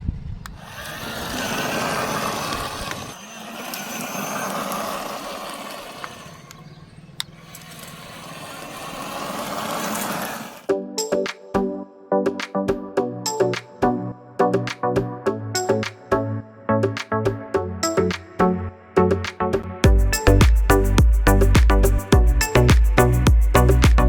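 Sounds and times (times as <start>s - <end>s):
motor whirring: 0.5s - 10.7s
music: 10.7s - 24.0s.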